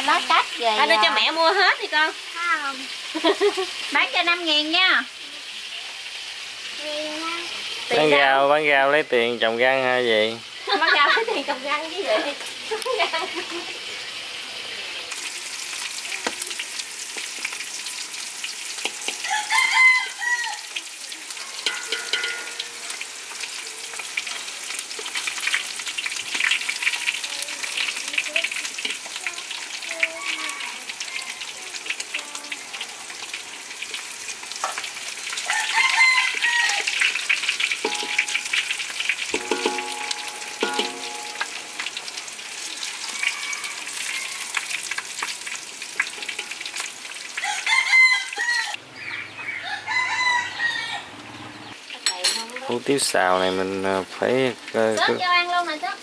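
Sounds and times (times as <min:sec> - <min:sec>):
meat sizzling in hot oil: 0:00.0 - 0:48.8, 0:51.7 - 0:56.0
rooster crowing: 0:19.0 - 0:20.8, 0:35.4 - 0:37.1, 0:42.5 - 0:44.8, 0:47.4 - 0:51.5.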